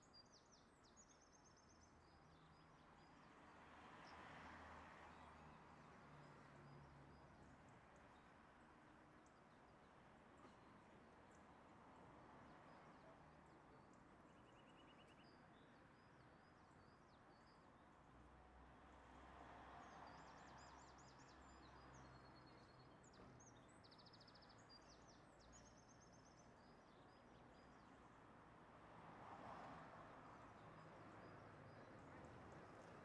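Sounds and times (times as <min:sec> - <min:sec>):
faint birds chirping and trilling: 0:12.7 - 0:17.8, 0:19.8 - 0:28.2.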